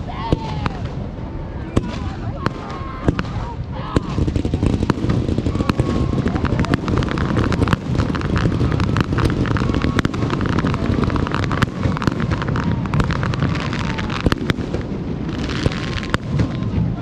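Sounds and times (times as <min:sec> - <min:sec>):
fireworks cracks and bangs: 0:00.0 - 0:17.0
low rumble of booms: 0:00.0 - 0:17.0.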